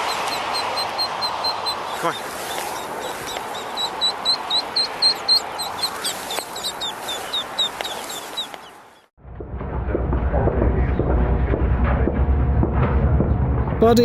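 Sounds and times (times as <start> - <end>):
ducklings peeping: 0.0 - 9.1.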